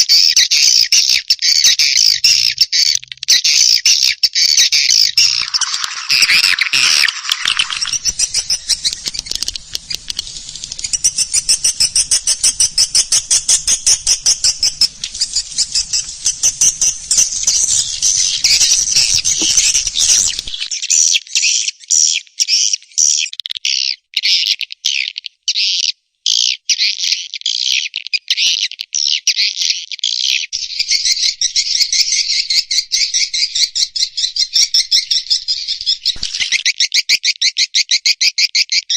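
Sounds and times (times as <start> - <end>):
swiftlets twittering: 5.1 - 20.8, 30.6 - 36.7.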